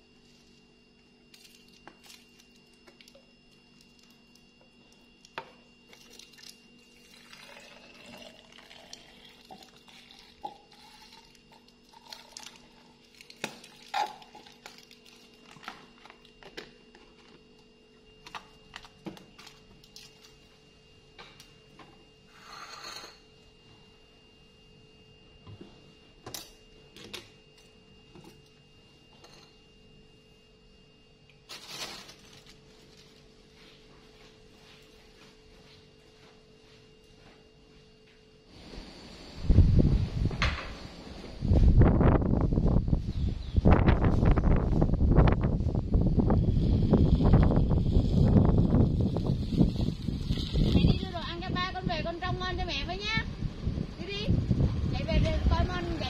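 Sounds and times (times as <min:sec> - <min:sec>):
milk pouring into bottle: 0:05.9 - 0:15.6, 0:48.8 - 0:50.9.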